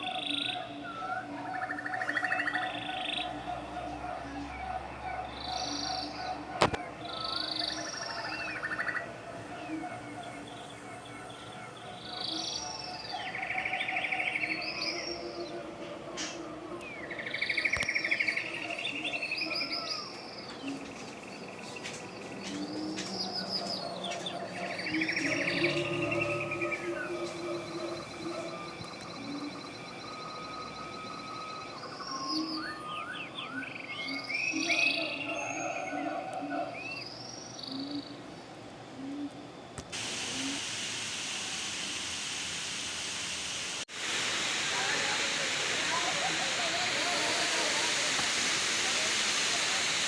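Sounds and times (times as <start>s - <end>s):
songbird trilling song: 4.4s - 15.6s, 16.2s - 38.2s
falling water rushing: 21.8s - 30.9s, 39.9s - 50.0s.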